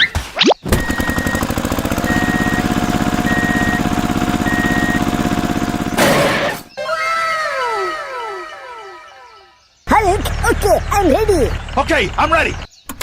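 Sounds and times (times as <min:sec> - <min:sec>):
construction machine engine rattling: 0:00.7 - 0:06.7, 0:09.9 - 0:13.0
backing beeper: 0:00.7 - 0:09.5.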